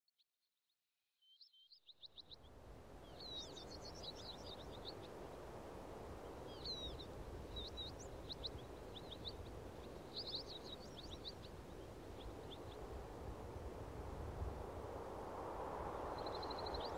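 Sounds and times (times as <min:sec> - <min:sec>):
small birds chirping: 0:01.3 - 0:05.4, 0:06.0 - 0:13.1, 0:15.8 - 0:16.9
low rush of outdoor noise: 0:02.3 - 0:16.9.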